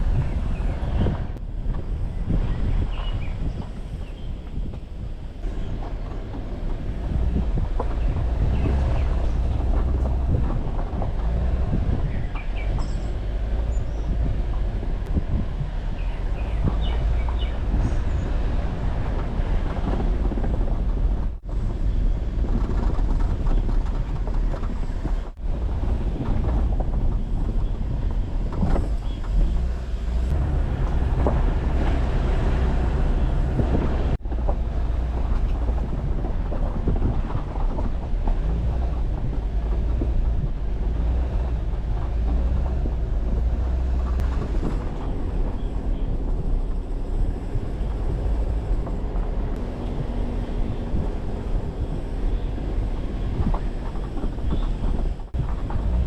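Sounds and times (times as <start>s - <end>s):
engine and tyre noise: 0.0s - 56.0s.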